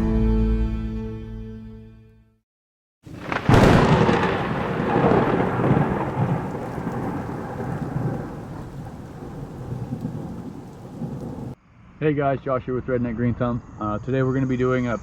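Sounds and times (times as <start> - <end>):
rain hissing: 3.1 - 11.6
thunder crack and rumble: 3.1 - 11.6.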